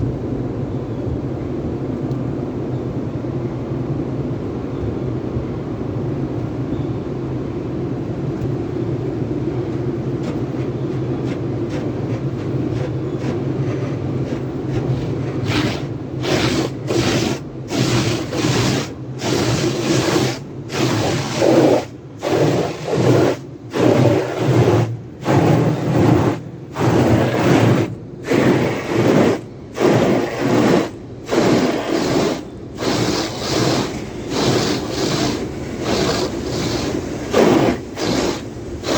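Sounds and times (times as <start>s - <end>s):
car wash machinery hum: 0.0s - 38.9s
swishing spraying bursts: 10.2s - 38.9s.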